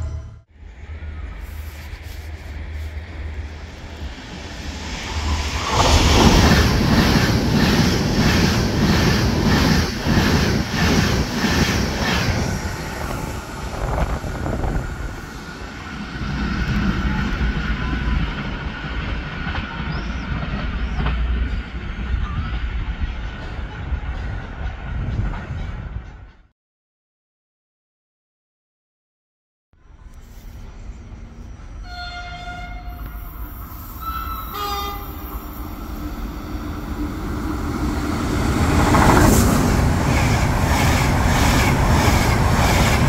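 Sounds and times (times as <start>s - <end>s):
train rumble: 0.0s - 26.5s, 29.9s - 43.0s.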